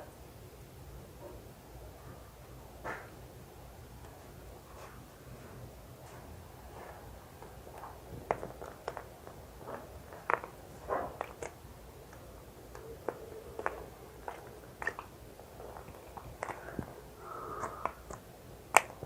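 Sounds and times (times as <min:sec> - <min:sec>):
soft clicks taps and squishes: 0:07.4 - 0:16.9, 0:17.6 - 0:19.0.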